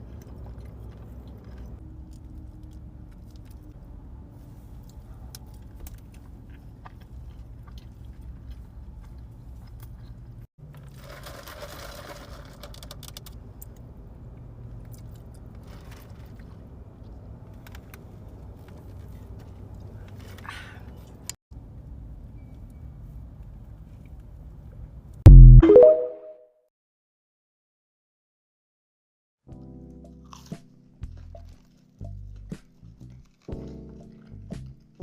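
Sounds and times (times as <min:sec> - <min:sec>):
person chewing and crunching food: 0:00.0 - 0:03.8, 0:04.7 - 0:10.5, 0:30.2 - 0:35.0.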